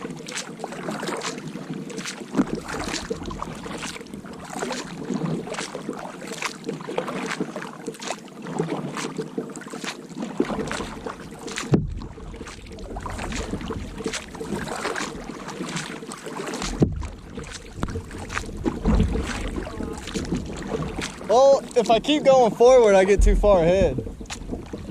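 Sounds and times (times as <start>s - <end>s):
kayak paddle splashing water: 0.0s - 24.9s
paddle knocks: 1.0s - 24.9s
wind buffeting microphone: 16.8s - 24.9s.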